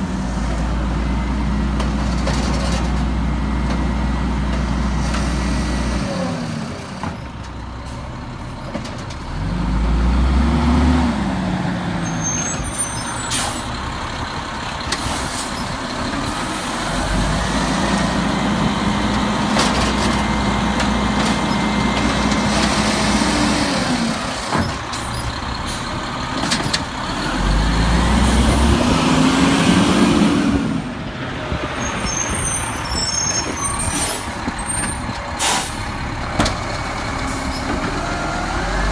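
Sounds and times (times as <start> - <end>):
diesel engine idling and revving: 0.0 - 38.9
air brake hissing: 12.4 - 13.7, 35.4 - 35.9.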